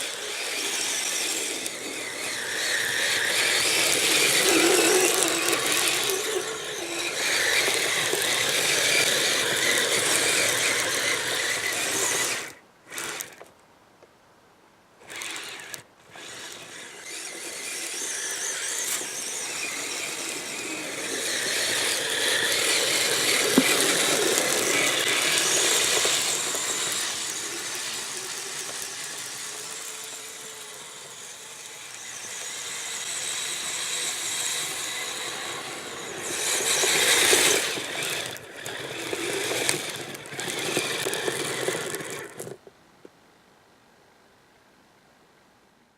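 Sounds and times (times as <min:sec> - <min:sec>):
electric motor and gears whining: 0:00.0 - 0:13.5, 0:15.0 - 0:42.6.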